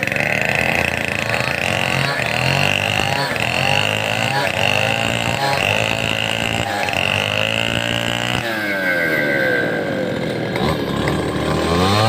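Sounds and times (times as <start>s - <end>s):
chainsaw engine running hard: 0.0s - 12.0s.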